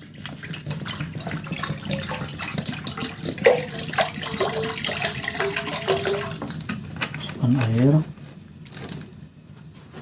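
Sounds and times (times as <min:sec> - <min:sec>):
water pouring into a pot: 0:00.0 - 0:06.9.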